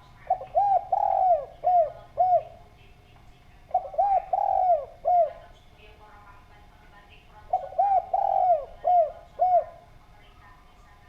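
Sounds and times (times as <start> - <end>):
dove cooing: 0.0 - 2.8, 3.6 - 5.6, 7.3 - 10.0.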